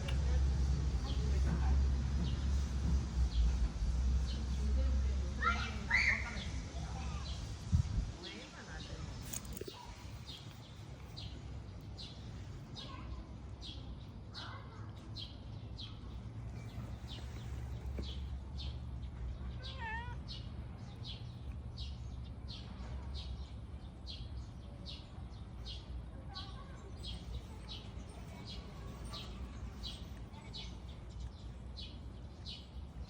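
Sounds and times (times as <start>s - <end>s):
cat meowing: 19.6s - 20.2s.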